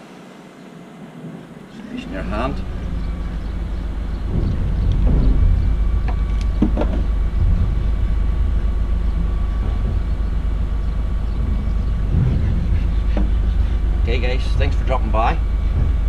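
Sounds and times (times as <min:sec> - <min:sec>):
steady low rumble: 0:00.9 - 0:16.0
scattered clicks and knocks: 0:04.1 - 0:07.9, 0:12.0 - 0:13.6.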